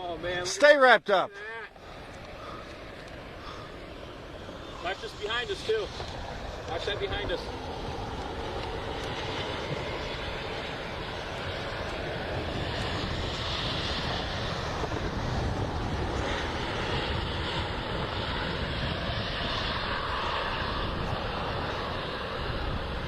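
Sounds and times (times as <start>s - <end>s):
strong storm wind roaring: 0.0s - 23.0s
wind buffeting microphone: 1.9s - 23.0s.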